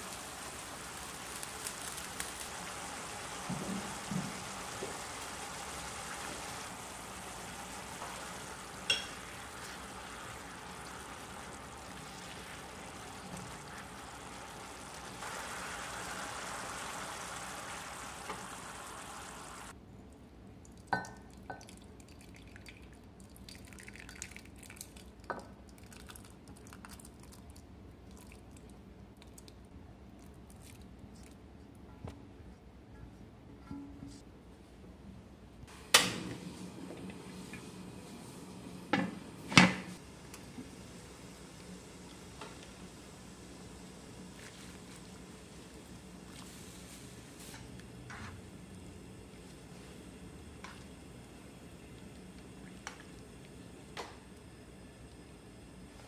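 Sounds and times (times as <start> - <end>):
food sizzling in a wok: 0.0 - 19.8.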